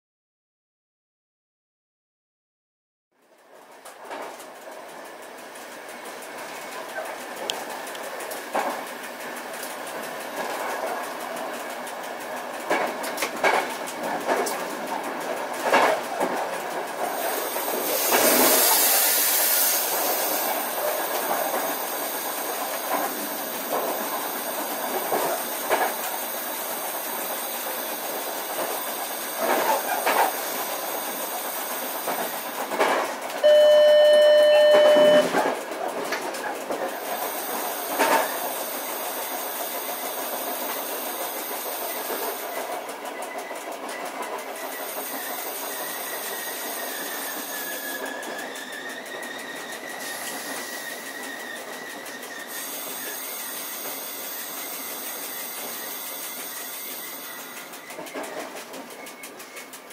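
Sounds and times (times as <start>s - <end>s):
train rumble and hiss: 3.4s - 33.9s, 34.6s - 59.9s
pitched warning tone: 33.4s - 35.4s.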